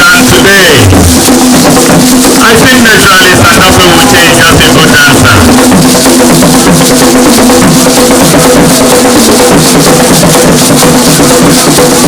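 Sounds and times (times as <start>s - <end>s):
shakers: 0.0s - 12.0s
traditional drumming: 0.0s - 12.0s
held tone: 2.4s - 5.7s.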